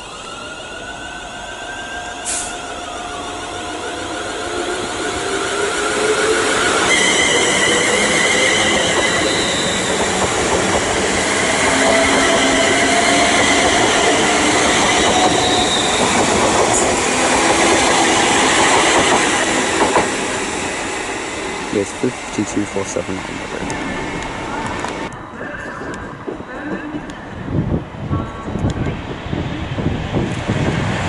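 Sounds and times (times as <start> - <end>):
wheels squealing on rails: 0.0 - 17.1.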